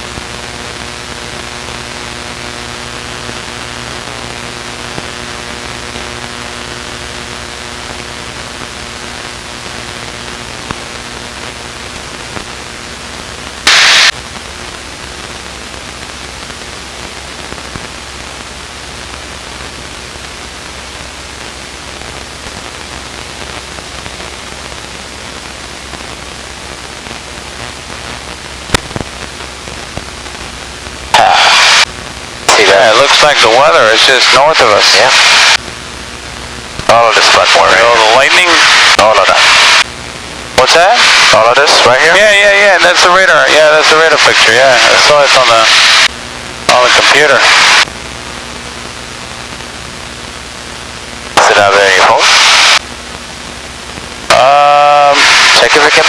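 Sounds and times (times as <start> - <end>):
loud burst of static: 0.0 - 56.0
aircraft cockpit hiss and engine hum: 0.1 - 56.0.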